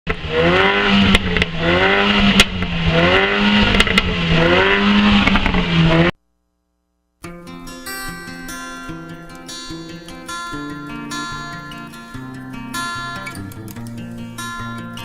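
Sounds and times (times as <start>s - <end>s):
car engine accelerating: 0.1s - 6.2s.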